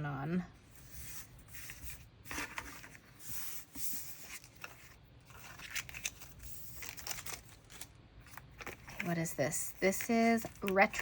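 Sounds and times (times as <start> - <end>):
paper rustling and crinkling: 0.8 - 11.0.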